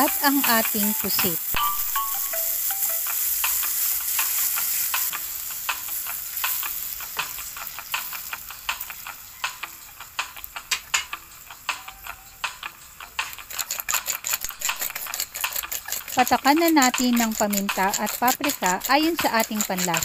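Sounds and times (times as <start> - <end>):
squid sizzling in a pan: 0.0 - 20.0
wooden spatula scraping a pan: 3.2 - 5.2, 13.2 - 20.0.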